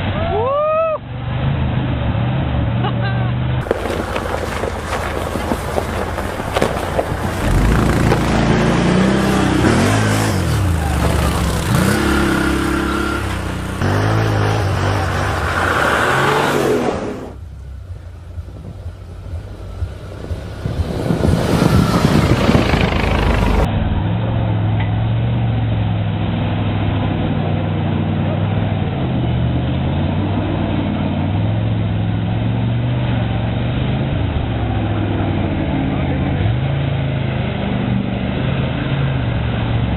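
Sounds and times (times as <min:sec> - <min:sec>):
off-road vehicle engines revving: 0:00.0 - 0:39.9.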